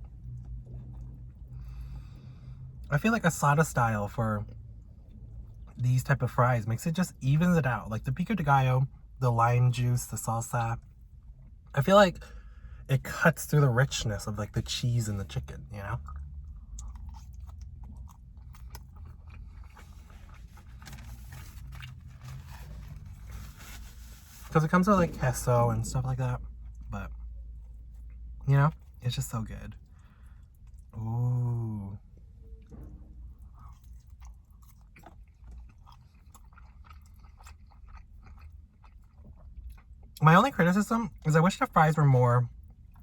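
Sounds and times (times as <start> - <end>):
chewing food: 0.0 - 2.9, 15.5 - 24.3, 25.9 - 29.1, 32.1 - 40.2, 42.5 - 43.0
chewing mouth clicks: 16.0 - 20.4, 33.6 - 40.2.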